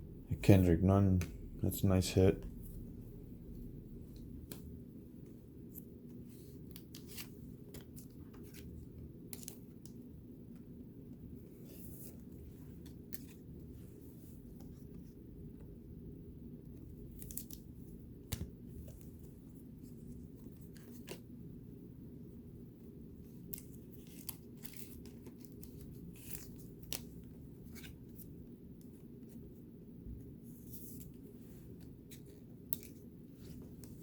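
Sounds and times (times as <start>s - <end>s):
steady low hum: 0.0s - 34.0s
cards sliding and clicking: 5.7s - 9.9s, 20.4s - 21.3s, 23.4s - 29.4s, 30.6s - 34.0s.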